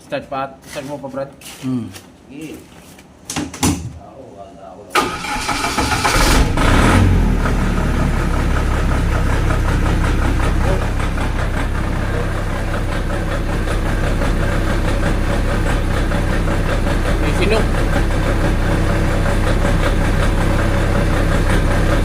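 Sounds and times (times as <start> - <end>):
generator engine running: 5.0 - 22.0.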